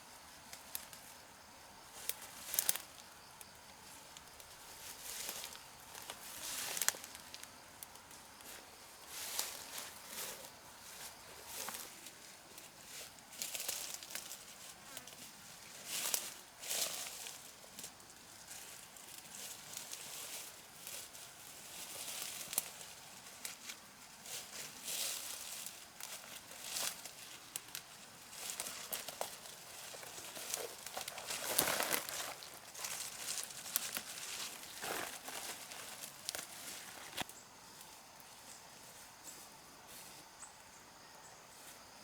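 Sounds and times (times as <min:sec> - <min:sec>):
dry material rustling and crackling: 0:04.8 - 0:11.9, 0:24.4 - 0:37.3.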